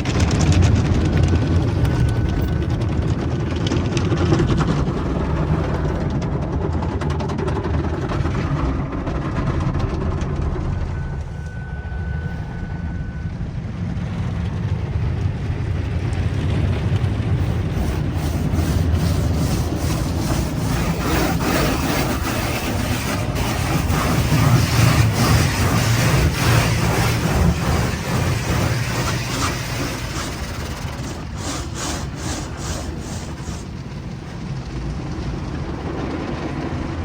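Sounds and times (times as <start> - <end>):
car wash machinery rumble: 0.0 - 37.0
brief steady tone: 10.6 - 13.7
rapid irregular knocking: 16.1 - 37.0
spraying water: 17.2 - 34.2.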